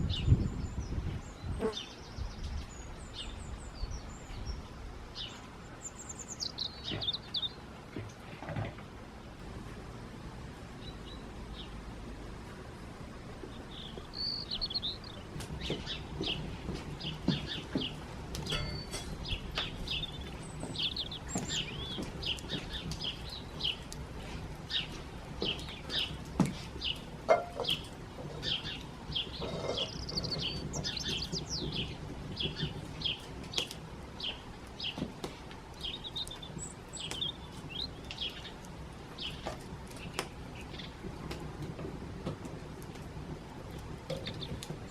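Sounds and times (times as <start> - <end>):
small birds chirping: 0.0 - 8.4, 9.8 - 11.9, 13.1 - 44.9.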